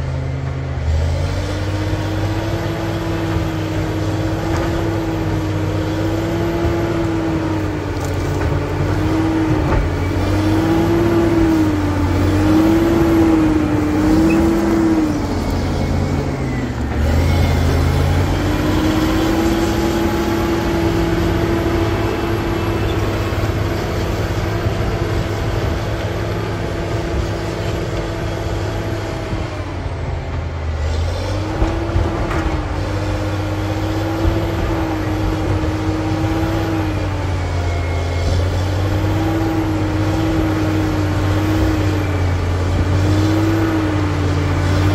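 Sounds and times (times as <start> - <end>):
bulldozer diesel engine: 0.0 - 44.9.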